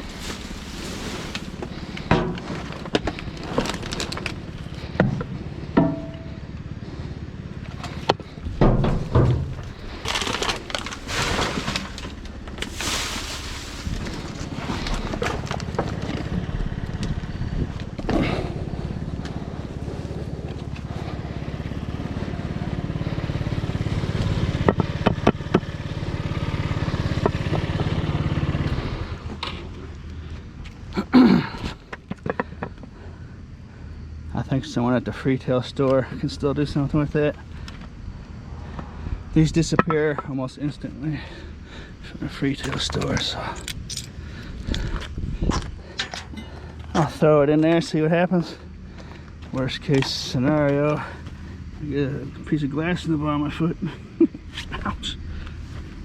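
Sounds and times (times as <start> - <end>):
objects clunking and scraping: 0.0 - 6.7, 7.6 - 19.4, 28.6 - 33.2, 42.6 - 47.8
steady low rumble: 0.0 - 24.6, 31.7 - 56.0.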